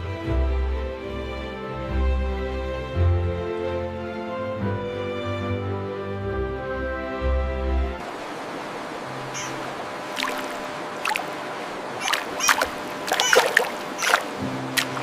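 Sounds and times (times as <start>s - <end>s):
water running: 9.1s - 15.0s
short sharp splashes: 9.4s - 11.4s, 12.0s - 15.0s.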